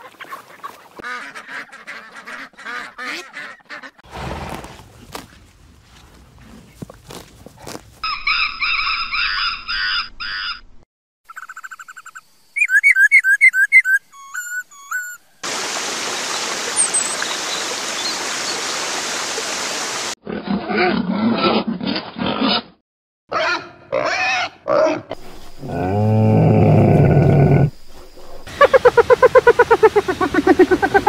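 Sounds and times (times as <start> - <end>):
high-pitched chirping calls: 11.3 - 15.4
animal grunting calls: 23.5 - 31.0
loud deep low animal call: 25.2 - 31.0.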